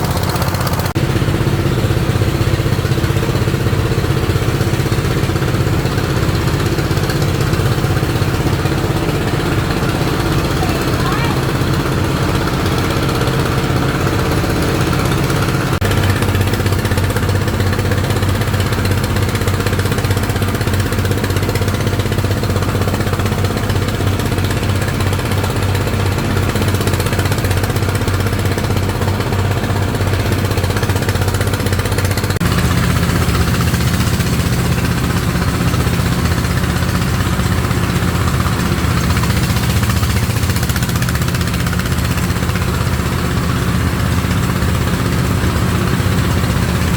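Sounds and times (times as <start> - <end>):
small engine running: 0.0 - 46.9.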